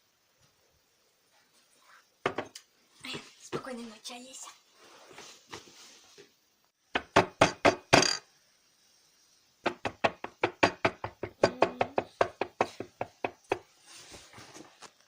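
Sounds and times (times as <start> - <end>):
knocking on a door: 2.2 - 2.5, 6.9 - 8.2, 9.6 - 13.6.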